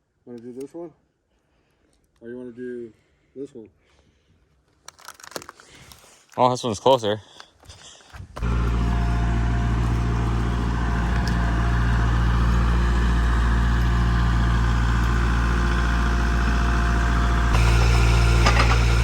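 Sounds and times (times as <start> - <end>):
tractor engine running: 8.4 - 19.0.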